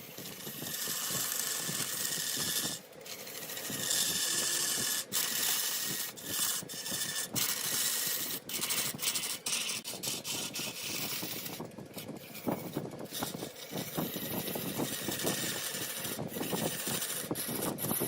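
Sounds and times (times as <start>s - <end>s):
cutting tool scraping wood: 0.0s - 18.0s
wood lathe running: 0.0s - 18.0s.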